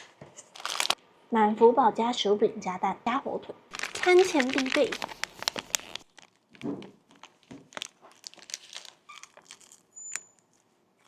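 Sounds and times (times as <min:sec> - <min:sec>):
paper wrapper crinkling: 0:00.4 - 0:01.0, 0:03.7 - 0:10.7.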